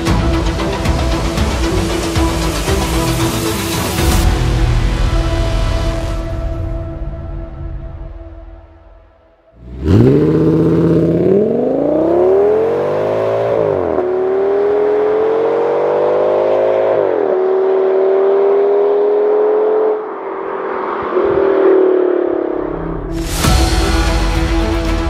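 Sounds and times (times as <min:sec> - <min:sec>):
car engine accelerating hard: 0:09.6 - 0:23.2.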